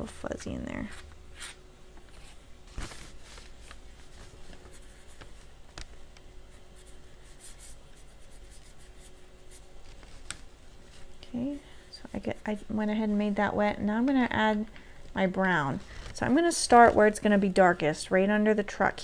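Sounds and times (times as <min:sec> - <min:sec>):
paintbrush brushing on paper: 0:06.4 - 0:13.5.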